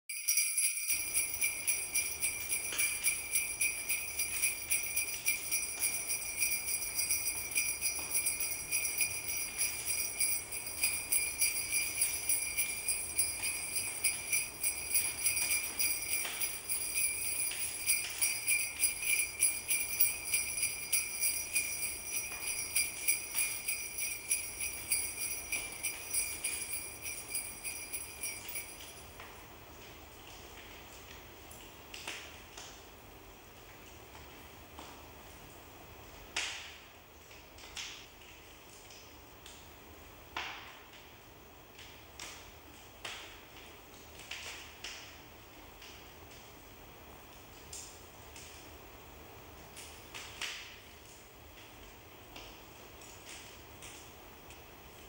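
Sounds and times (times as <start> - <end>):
sleigh bells jingling: 0.1 - 29.4.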